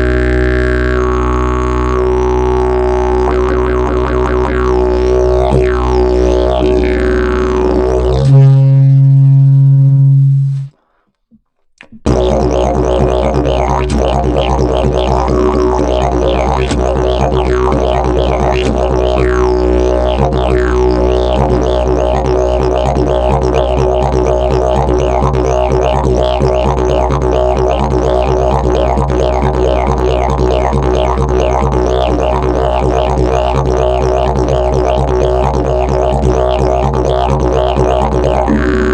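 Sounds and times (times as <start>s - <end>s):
didgeridoo drone: 0.0s - 10.7s, 12.0s - 38.9s.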